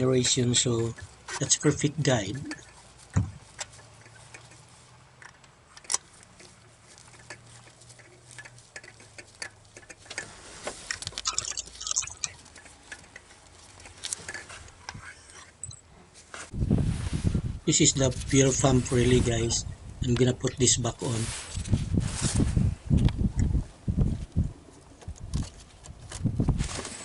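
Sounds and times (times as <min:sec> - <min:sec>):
scratchy clicking: 0:03.5 - 0:11.2
clicks and rattles of hand tools: 0:05.2 - 0:15.8.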